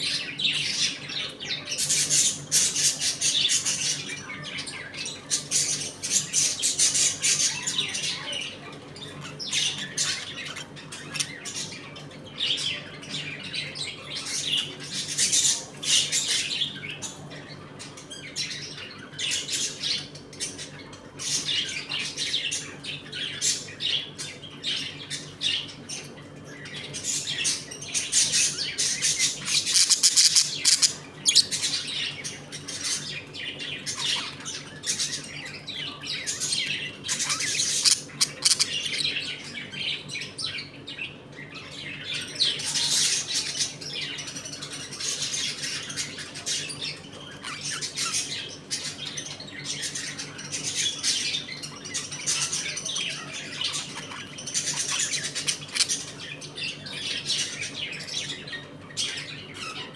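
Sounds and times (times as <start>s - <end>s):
budgerigars chattering: 0.1s - 59.9s.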